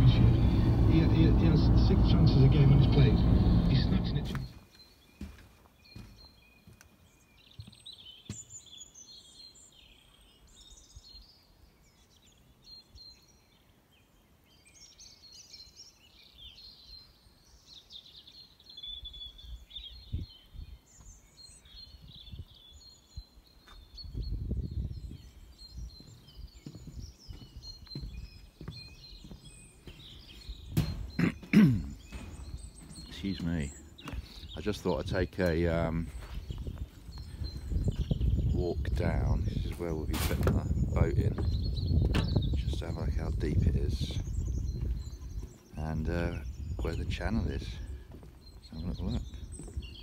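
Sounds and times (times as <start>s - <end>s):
low rumble: 0.0s - 4.5s
small birds chirping: 0.0s - 50.0s.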